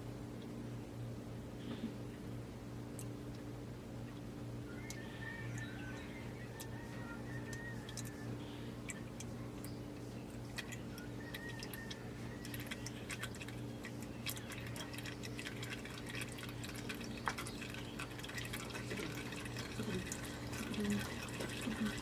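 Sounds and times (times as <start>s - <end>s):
steady low hum: 0.0s - 22.0s
oil dripping into pan: 10.4s - 22.0s.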